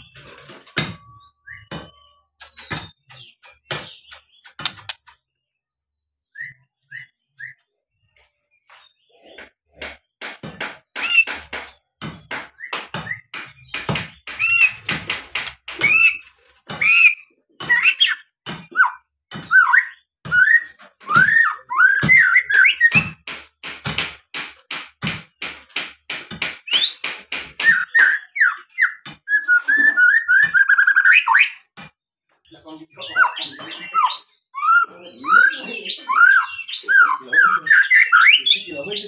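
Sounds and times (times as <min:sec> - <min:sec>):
sharp bird clicking notes: 0:02.4 - 0:05.2, 0:13.4 - 0:16.2
bird singing whistled phrases: 0:06.2 - 0:07.7, 0:17.8 - 0:23.1, 0:27.6 - 0:31.6, 0:32.9 - 0:39.0.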